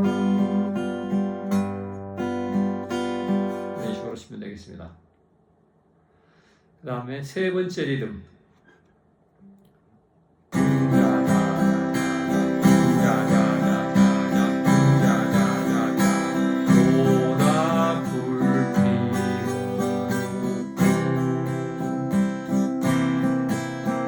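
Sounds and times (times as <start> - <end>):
acoustic guitar strumming: 0.0 - 4.2, 10.5 - 24.0.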